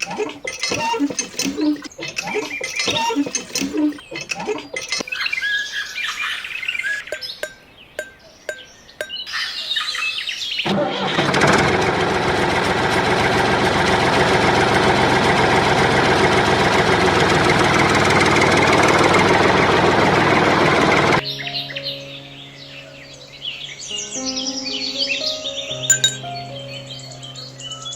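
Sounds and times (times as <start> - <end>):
bird chirps: 5.0 - 10.6, 21.4 - 27.9.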